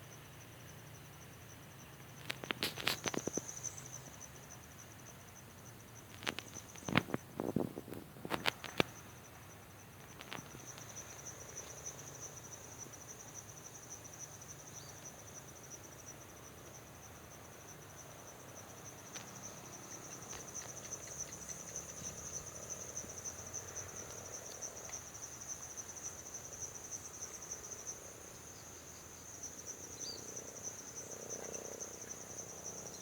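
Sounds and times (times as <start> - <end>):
cricket chirping: 0.0 - 33.0.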